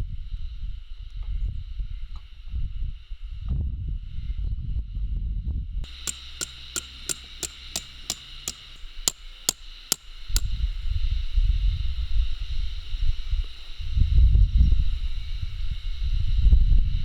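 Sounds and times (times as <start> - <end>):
hammer striking metal peg: 5.9 - 10.5.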